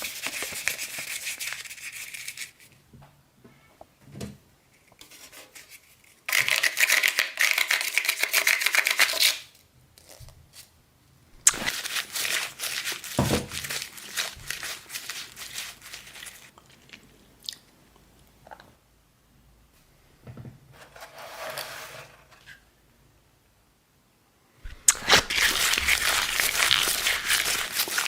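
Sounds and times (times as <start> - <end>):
crunching and tearing: 11.4 - 16.5, 24.7 - 28.0.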